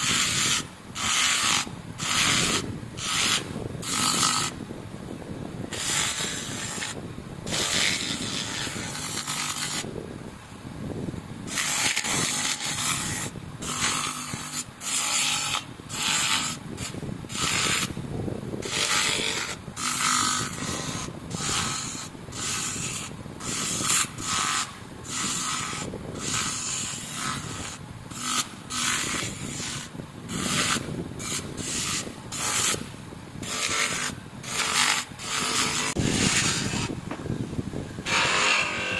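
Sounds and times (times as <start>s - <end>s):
abrasive rubbing on metal: 37.9s - 38.9s.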